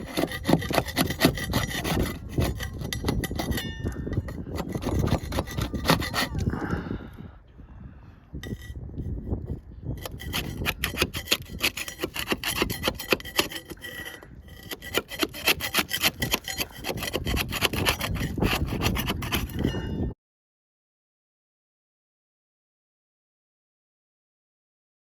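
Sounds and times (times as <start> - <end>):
sanding a boat hull: 0.0 - 6.5, 10.0 - 19.7.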